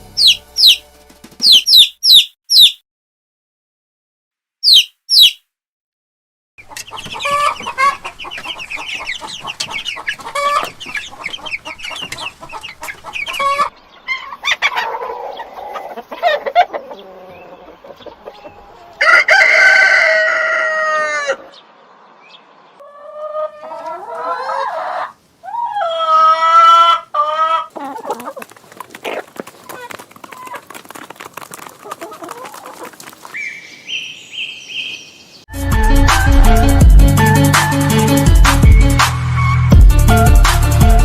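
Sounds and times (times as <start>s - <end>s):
chickens clucking rapidly: 0.2s - 2.8s, 4.6s - 5.4s, 6.6s - 21.6s, 22.8s - 33.8s
rooster crowing: 18.9s - 21.5s.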